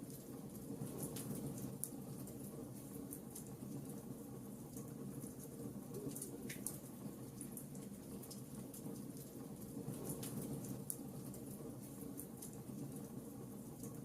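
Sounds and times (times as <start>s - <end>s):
fire popping and snapping: 4.7s - 14.0s.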